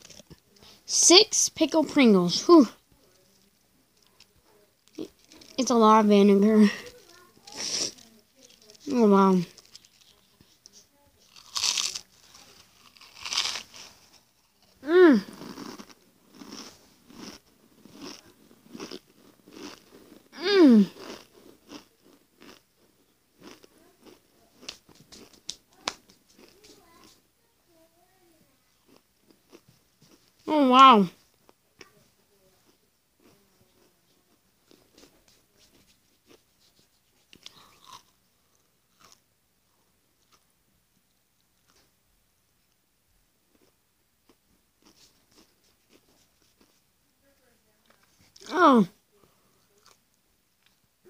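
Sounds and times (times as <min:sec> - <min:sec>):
crunchy chewing of crisps: 0:00.0 - 0:00.4, 0:04.8 - 0:05.6, 0:09.5 - 0:10.3, 0:11.2 - 0:26.7, 0:28.8 - 0:30.4, 0:32.6 - 0:35.1, 0:35.7 - 0:39.2, 0:43.5 - 0:46.8, 0:49.8 - 0:50.8
crunching potato crisps: 0:11.2 - 0:20.2, 0:20.9 - 0:22.6, 0:23.4 - 0:25.4, 0:37.4 - 0:38.1
closed-mouth voice hum: 0:14.8 - 0:15.4, 0:20.4 - 0:21.0.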